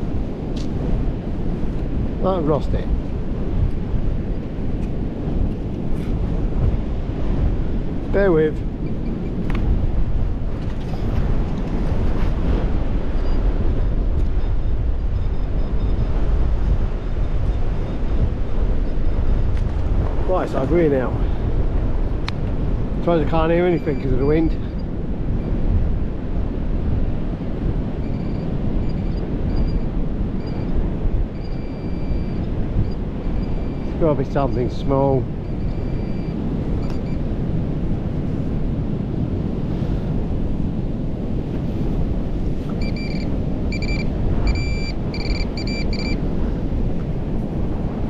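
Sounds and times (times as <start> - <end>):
strong wind buffeting microphone: 0.0 - 48.0
metal detector beeps: 13.2 - 13.6, 23.6 - 25.6, 28.0 - 34.6, 35.4 - 37.3, 42.7 - 46.3.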